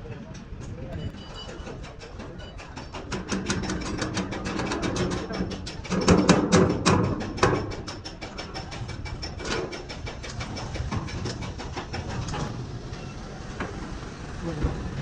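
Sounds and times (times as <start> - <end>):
low engine hum: 12.0 - 15.0.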